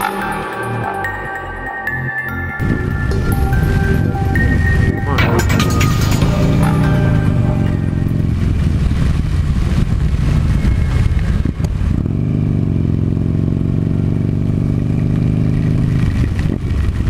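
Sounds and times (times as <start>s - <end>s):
motorcycle engine running: 2.6s - 17.0s.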